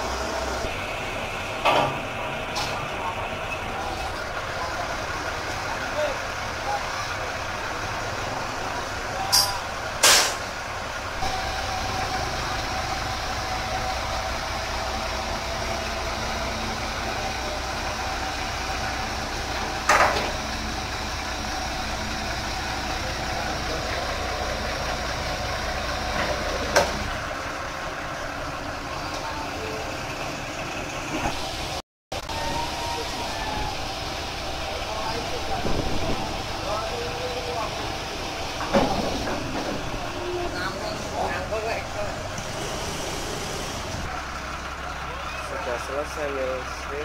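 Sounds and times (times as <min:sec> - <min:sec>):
steady whine: 0:00.0 - 0:27.0
diesel engine hum: 0:00.0 - 0:47.0
sharp metallic bangs: 0:09.2 - 0:10.6.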